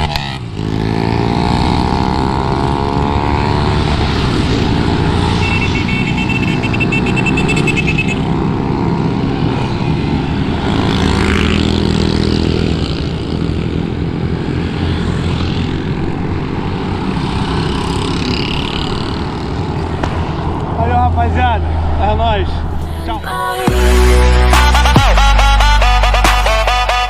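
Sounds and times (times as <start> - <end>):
wind rushing over microphone: 1.4 - 5.9
motorcycle engine running: 4.7 - 16.0.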